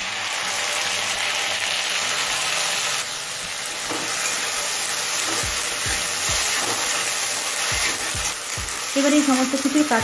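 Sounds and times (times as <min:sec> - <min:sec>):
food sizzling in hot oil: 0:00.0 - 0:10.0
spatula scraping a pan: 0:03.8 - 0:08.4.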